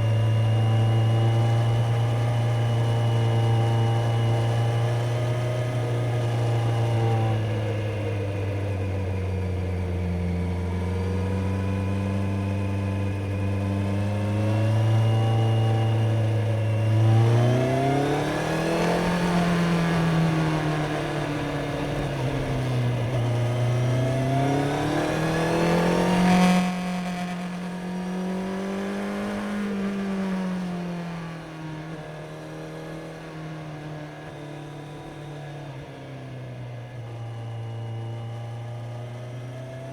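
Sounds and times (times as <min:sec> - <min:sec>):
motorcycle engine revving: 0:09.5 - 0:35.4.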